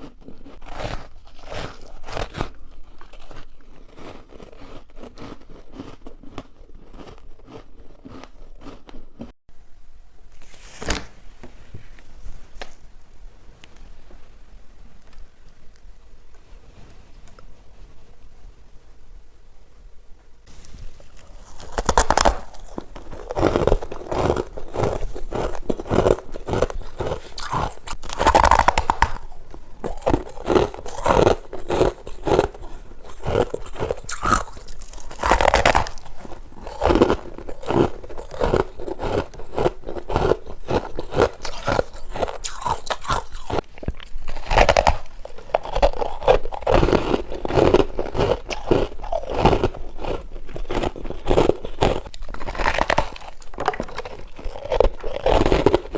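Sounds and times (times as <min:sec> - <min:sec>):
person chewing ice crunching: 0:00.0 - 0:09.4, 0:20.8 - 0:55.9.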